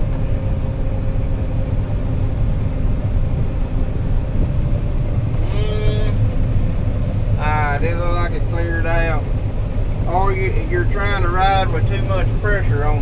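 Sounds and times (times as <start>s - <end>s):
combine harvester rumble in cab: 0.0s - 13.0s
brief voice-like hum: 5.3s - 6.2s.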